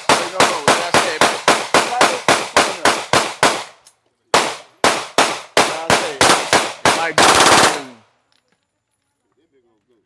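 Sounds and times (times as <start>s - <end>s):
pistol shots: 0.0s - 3.8s, 4.4s - 8.0s.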